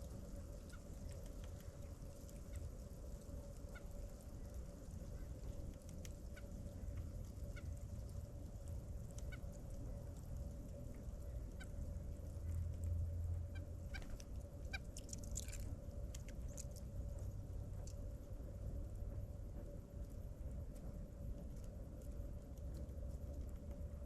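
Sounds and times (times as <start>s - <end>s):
faint hum: 0.0s - 24.0s
low rumble: 6.6s - 14.8s.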